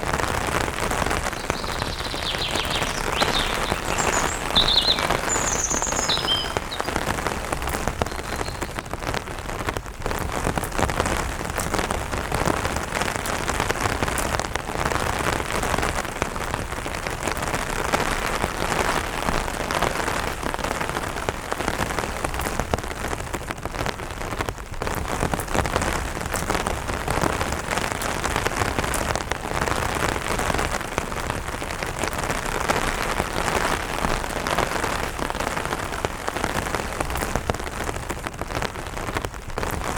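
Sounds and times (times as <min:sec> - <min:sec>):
rain pattering on an umbrella: 0:00.0 - 0:39.9
bird chirping: 0:01.1 - 0:09.0.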